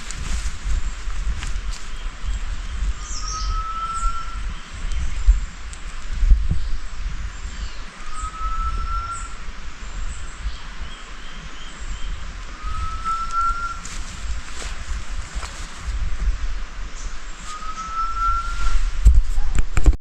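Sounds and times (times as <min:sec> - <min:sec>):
steady low rumble: 0:00.0 - 0:20.0
faint rising whistled call: 0:03.0 - 0:04.7, 0:07.6 - 0:09.4, 0:10.5 - 0:15.5, 0:17.0 - 0:19.0.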